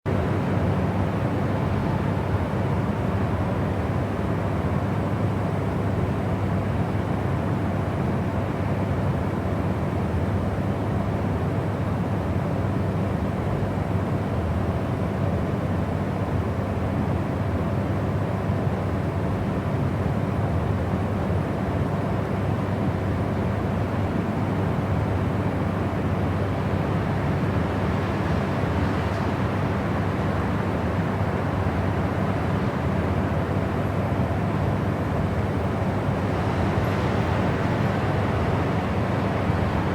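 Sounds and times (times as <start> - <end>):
deep white noise: 21.0 - 39.9.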